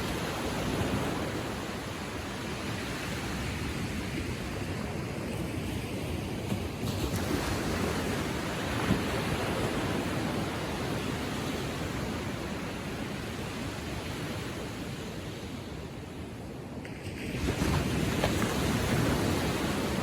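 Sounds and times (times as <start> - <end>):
ocean waves lapping on shore: 0.0 - 20.0.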